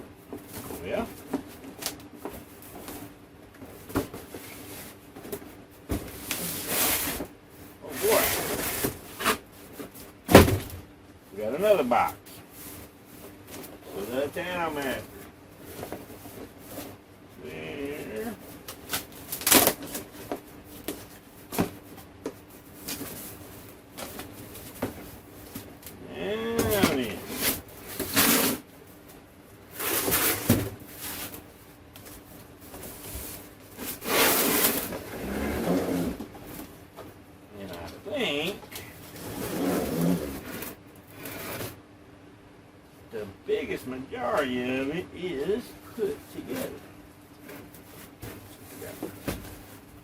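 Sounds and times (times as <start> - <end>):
cardboard scraping and rustling: 0.4 - 7.3, 7.9 - 10.8, 26.5 - 28.6, 29.7 - 36.7, 38.5 - 41.8
cardboard packaging knocks and scrapes: 8.5 - 10.8, 29.8 - 31.4, 47.5 - 49.7
knocks on cardboard box: 10.3 - 10.8.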